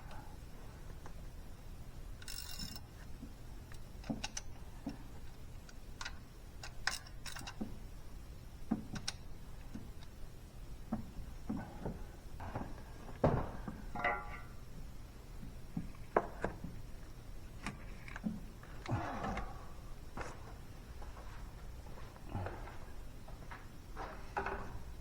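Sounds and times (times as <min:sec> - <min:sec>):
light clicks and metallic knocks: 0:02.2 - 0:07.8, 0:08.6 - 0:10.2, 0:10.9 - 0:14.6.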